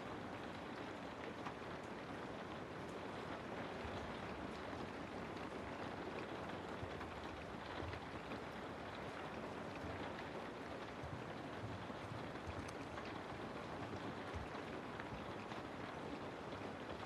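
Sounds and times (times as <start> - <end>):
rain falling through trees: 0.0 - 17.0
raindrop ticks: 9.6 - 15.7.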